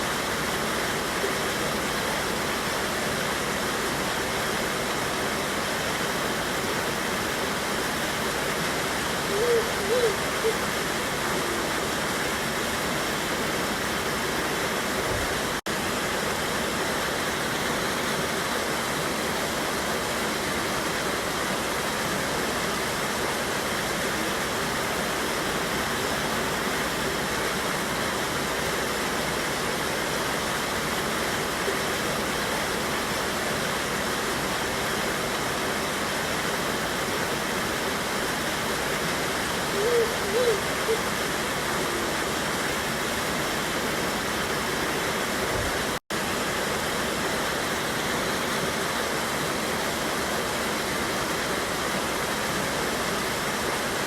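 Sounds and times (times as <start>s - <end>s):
river water rushing over waterfall: 0.0s - 54.0s.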